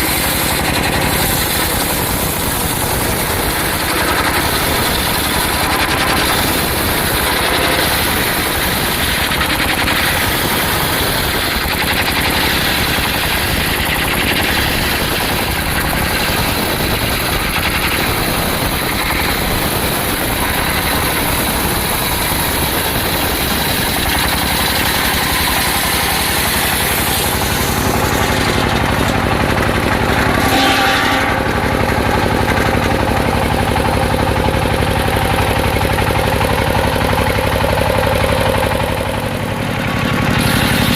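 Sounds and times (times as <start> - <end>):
circular sawmill cutting wood: 0.0 - 40.9.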